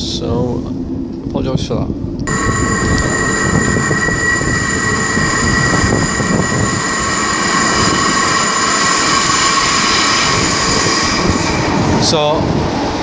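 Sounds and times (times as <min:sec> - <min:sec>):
electric train rumbling: 0:00.0 - 0:13.0
high-pitched whine: 0:02.2 - 0:12.2.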